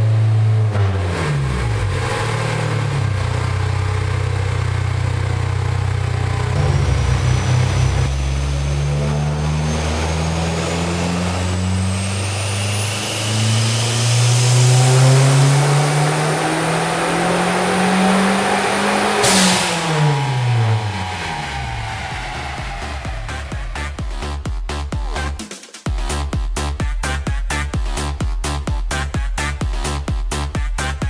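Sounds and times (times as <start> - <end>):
car engine revving on dyno: 0.0 - 24.2
high turbo whistle: 5.9 - 24.3.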